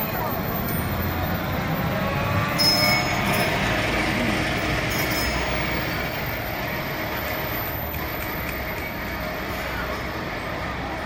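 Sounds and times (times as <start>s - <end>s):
tram rumbling on rails: 0.0s - 11.0s
wheel squeals: 2.4s - 3.8s, 4.8s - 6.5s.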